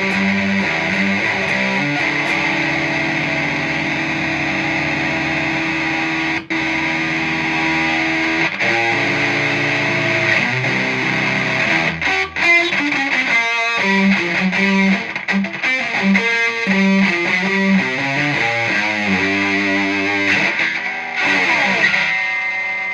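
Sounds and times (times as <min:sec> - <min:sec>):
fuzzed electric guitar: 0:00.0 - 0:22.9.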